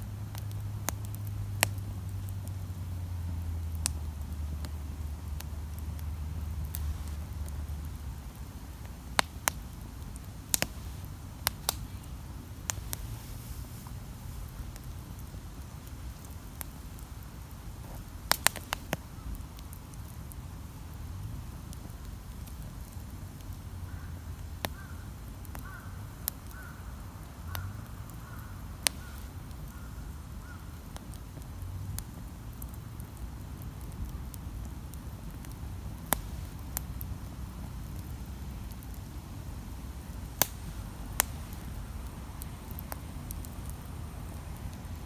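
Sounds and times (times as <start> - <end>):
campfire crackling and popping: 0.0 - 45.0.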